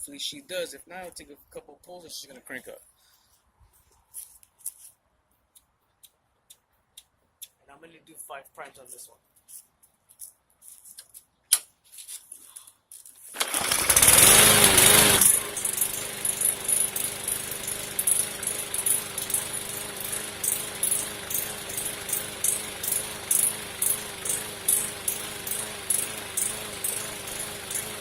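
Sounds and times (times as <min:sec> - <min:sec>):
lawnmower engine running: 0:13.4 - 0:28.0.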